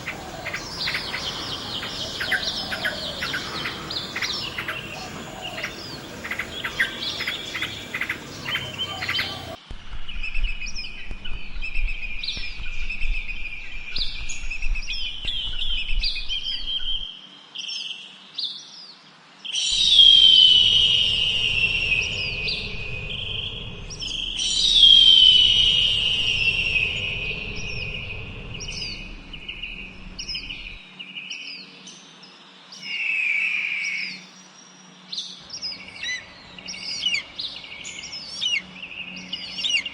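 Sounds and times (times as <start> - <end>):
birds chirping: 0.0 - 9.6, 19.6 - 39.9.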